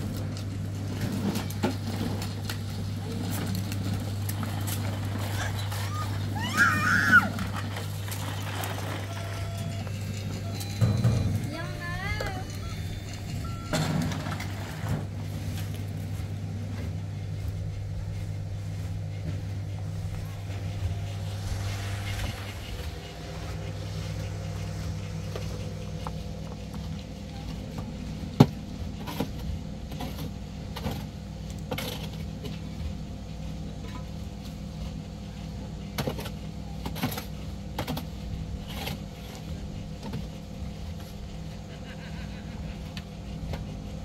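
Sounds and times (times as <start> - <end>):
motor humming: 0.0 - 33.0.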